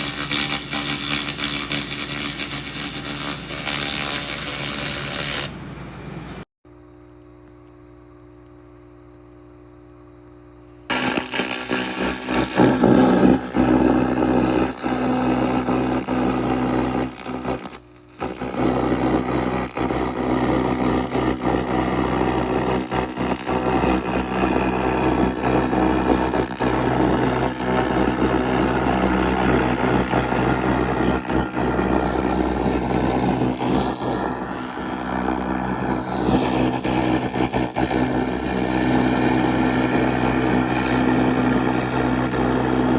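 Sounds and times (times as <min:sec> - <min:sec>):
low machine hum: 0:04.7 - 0:42.9
laser rust remover crackling hiss: 0:10.9 - 0:42.9.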